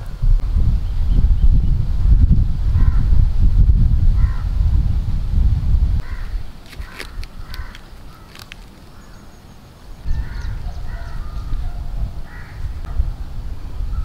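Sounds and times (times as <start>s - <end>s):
birds calling: 6.0s - 14.0s.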